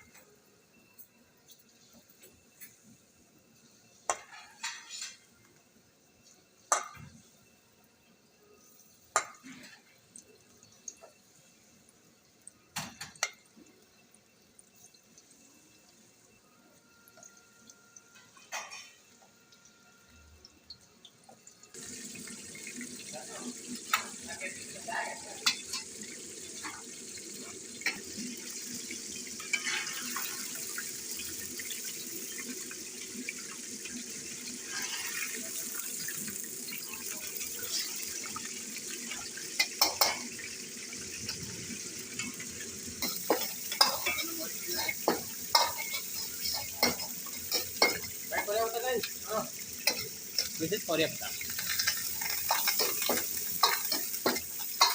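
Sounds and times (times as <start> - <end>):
oil sizzling in a pan: 0.0 - 54.9.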